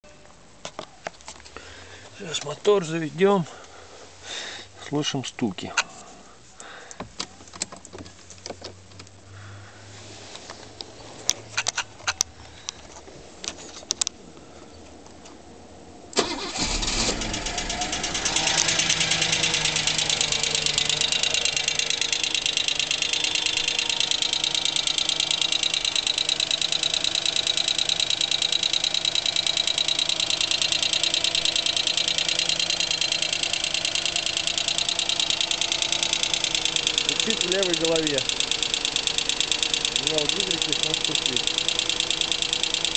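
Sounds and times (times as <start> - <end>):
car engine cranking and idling: 0.8 - 14.2, 14.9 - 42.9
fast steady engine ticking: 16.2 - 42.9
scattered clicks: 17.5 - 42.9.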